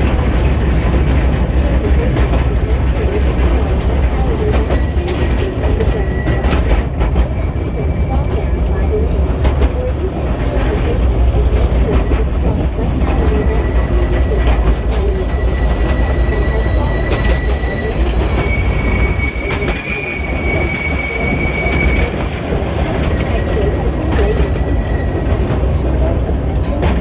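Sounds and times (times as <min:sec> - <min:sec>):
train low rumble: 0:00.0 - 0:27.0
wheels clicking on rails: 0:00.0 - 0:27.0
wheel squeal: 0:04.6 - 0:08.2, 0:09.6 - 0:11.0, 0:11.9 - 0:25.5.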